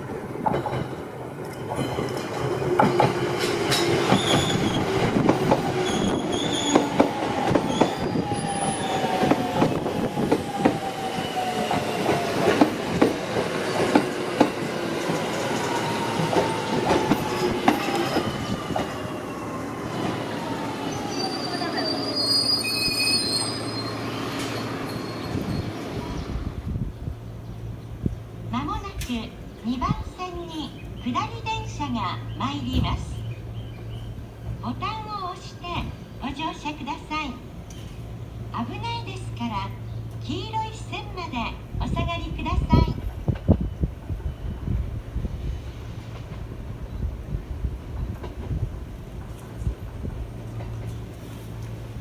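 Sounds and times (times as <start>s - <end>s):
high-pitched brake squeals: 4.1s - 4.8s, 5.8s - 6.9s, 20.9s - 26.0s.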